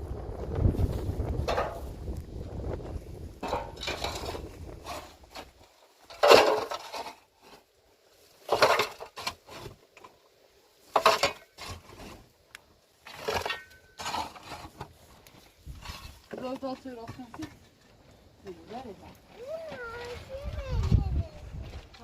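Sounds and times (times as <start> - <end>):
clattering and scraping: 0.5 - 7.7, 8.3 - 10.2, 10.8 - 22.0.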